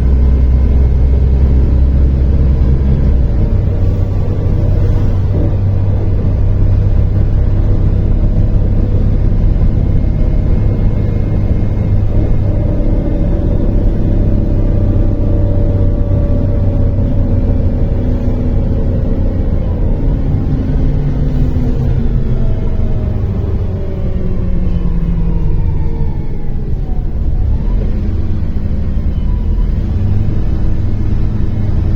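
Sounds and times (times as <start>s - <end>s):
bus engine rumble: 0.0s - 31.9s
drivetrain whine: 0.0s - 31.9s.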